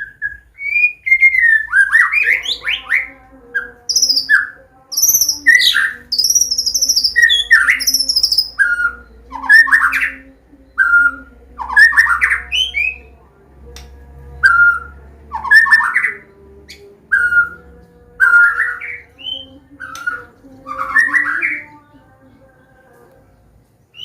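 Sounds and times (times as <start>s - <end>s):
bird singing whistled warbling song: 0.0s - 13.1s, 14.4s - 21.8s.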